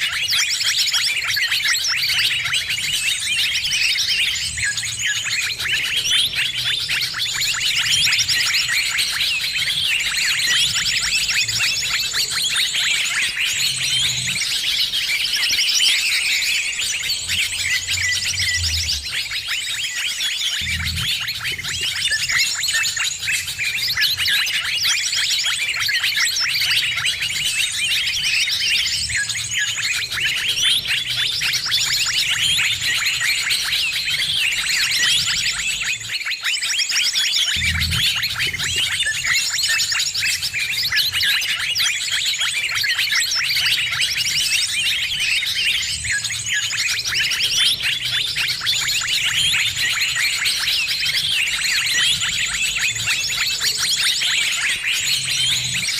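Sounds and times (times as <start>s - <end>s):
chorus of birds chirping: 0.0s - 55.9s
low hum: 20.6s - 21.8s, 37.6s - 38.8s.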